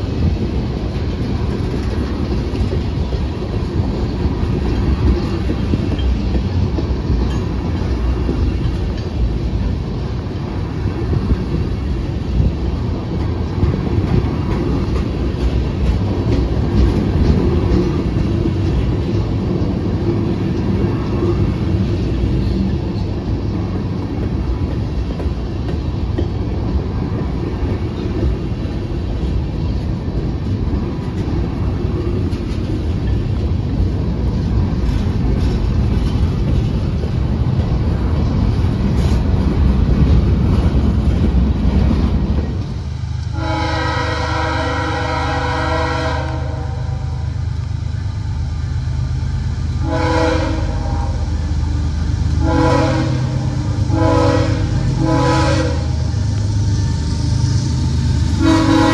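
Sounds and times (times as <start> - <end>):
freight cars rumbling on rails: 0.0 - 58.9
locomotive engine drone: 0.0 - 58.9
locomotive air horn blasts: 43.3 - 47.3, 49.8 - 51.3, 52.4 - 56.0, 58.4 - 58.9.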